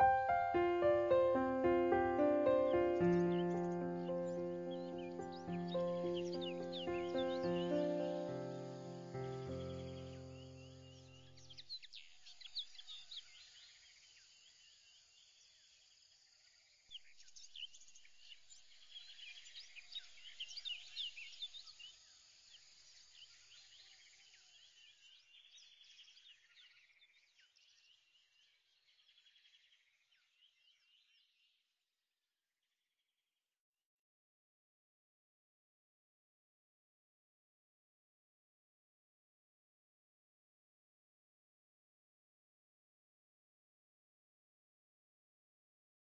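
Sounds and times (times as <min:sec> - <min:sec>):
small birds chirping: 0:00.0 - 0:31.6.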